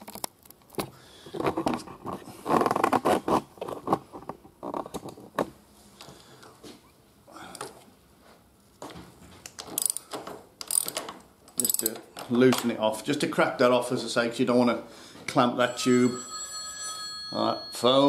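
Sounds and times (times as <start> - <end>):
ratchet wrench clicking: 9.8 - 12.0.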